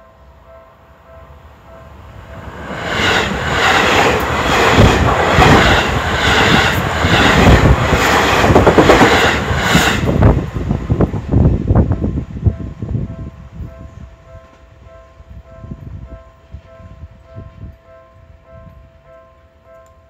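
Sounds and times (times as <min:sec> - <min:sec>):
train rushing past: 0:01.6 - 0:14.0.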